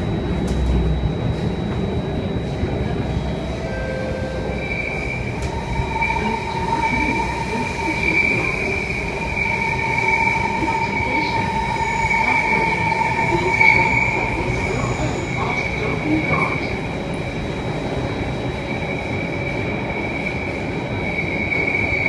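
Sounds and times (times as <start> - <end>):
metro train rumble in tunnel: 0.0 - 22.0.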